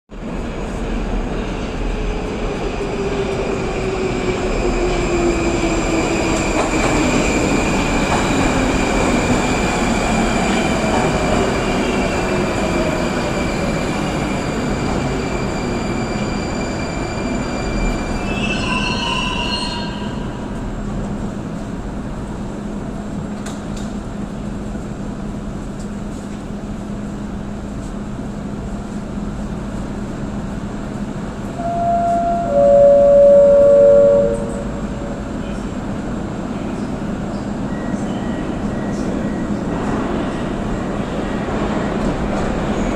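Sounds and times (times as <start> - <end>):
train low hum: 0.1 - 42.9
subway train motor whine: 30.0 - 42.9.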